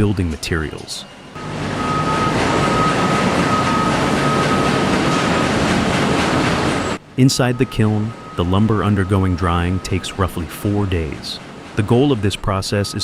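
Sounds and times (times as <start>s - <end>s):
mill machinery noise: 0.0s - 13.0s
thin high whine: 6.7s - 13.0s.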